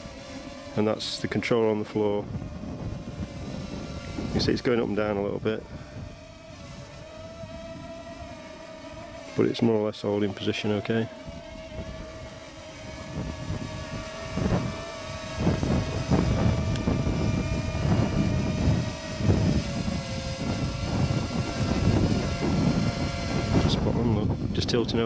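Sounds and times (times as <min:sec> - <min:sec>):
drone propellers whining: 0:00.0 - 0:25.0
wind buffeting microphone: 0:00.0 - 0:25.0.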